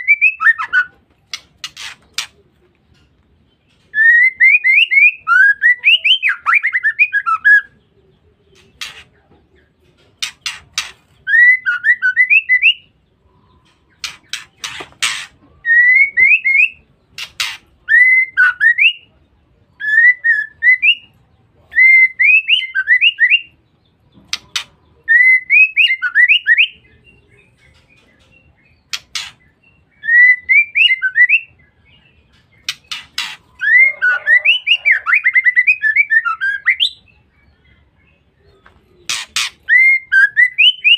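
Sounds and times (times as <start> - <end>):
bird whistled calls: 32.7 - 37.0, 39.1 - 40.9.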